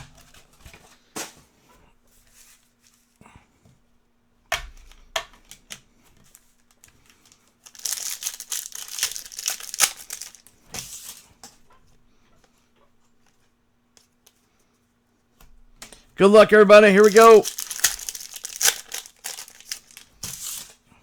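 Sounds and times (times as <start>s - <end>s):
plastic wrapping crinkling: 7.6s - 10.4s, 17.0s - 20.6s.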